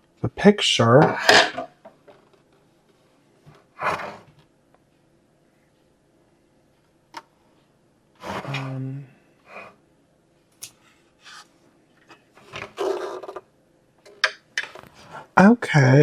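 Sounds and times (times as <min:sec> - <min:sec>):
person humming: 0:08.5 - 0:09.1.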